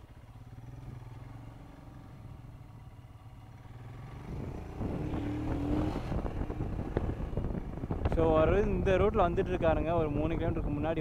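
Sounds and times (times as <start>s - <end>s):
traffic noise: 0.0s - 8.8s
motorcycle engine idling: 0.0s - 11.0s.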